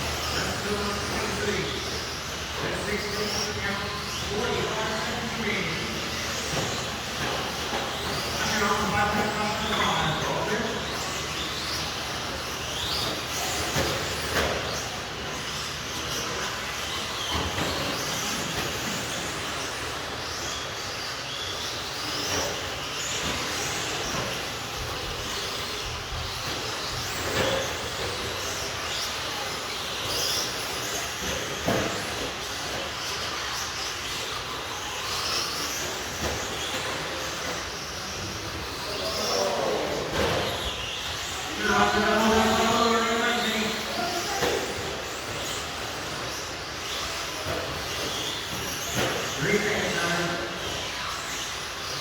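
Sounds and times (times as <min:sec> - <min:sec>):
rc truck motors whining: 0:00.0 - 0:52.0
steady running noise: 0:00.0 - 0:52.0.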